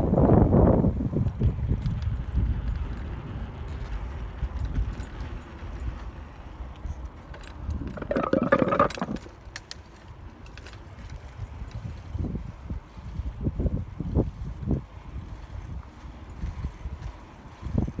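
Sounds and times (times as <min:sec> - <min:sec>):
wind buffeting microphone: 0:00.0 - 0:06.1, 0:11.0 - 0:18.0
short rattle: 0:07.7 - 0:09.3.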